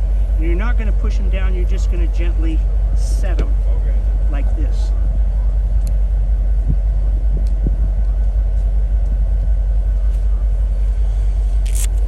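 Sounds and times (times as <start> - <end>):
wind buffeting microphone: 4.9 - 10.1.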